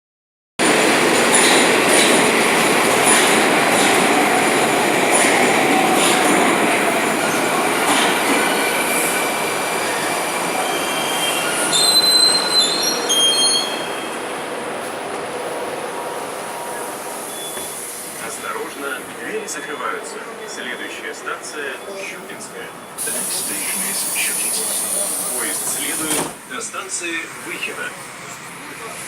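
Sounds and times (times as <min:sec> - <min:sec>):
metro train rumbling: 0:00.6 - 0:29.0
high brake squeals: 0:09.9 - 0:14.2, 0:16.6 - 0:18.0.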